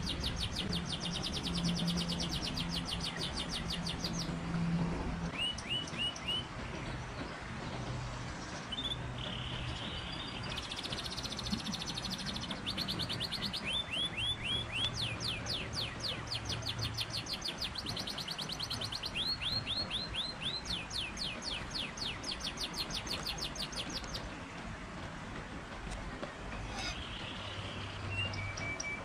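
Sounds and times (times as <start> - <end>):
songbird singing fast trills: 0.0 - 4.3, 5.3 - 6.5, 8.8 - 24.3, 26.9 - 29.0.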